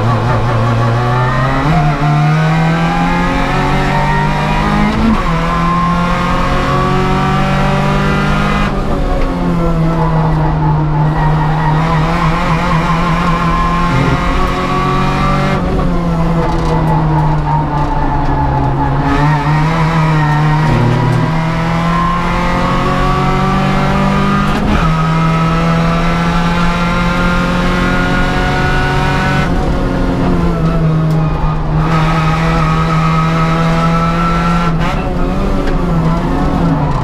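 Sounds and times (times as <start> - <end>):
race car engine revving: 0.0 - 37.0.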